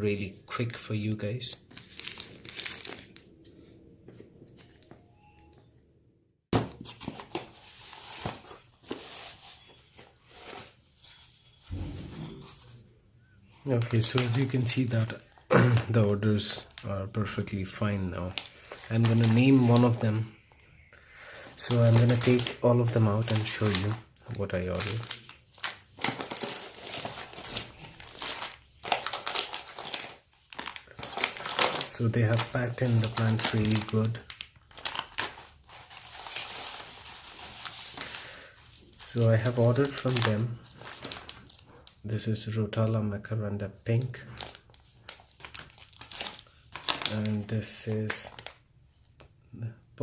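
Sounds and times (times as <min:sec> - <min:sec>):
packaging torn open crinkling: 0:01.6 - 0:03.4, 0:18.2 - 0:20.0, 0:21.6 - 0:42.0, 0:44.3 - 0:49.2.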